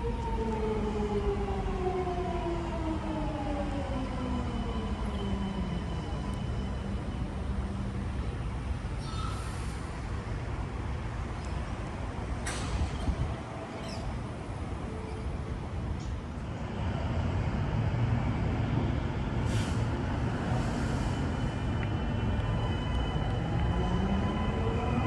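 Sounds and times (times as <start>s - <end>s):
low train rumble: 0.0s - 25.0s
short air hisses: 19.5s - 19.9s.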